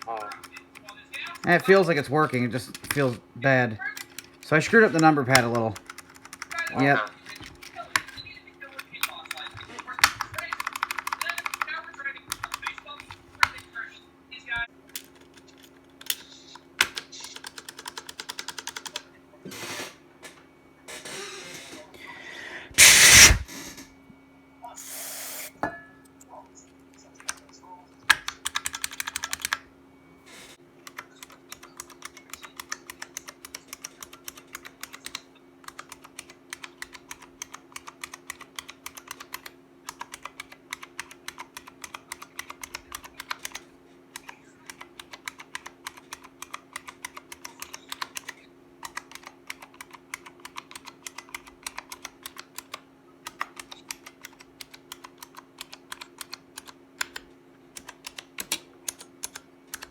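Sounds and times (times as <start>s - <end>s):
keyboard keys clicking: 8.8s - 11.7s, 12.3s - 12.9s, 16.8s - 19.0s, 28.1s - 29.6s, 30.8s - 43.6s, 44.2s - 59.9s.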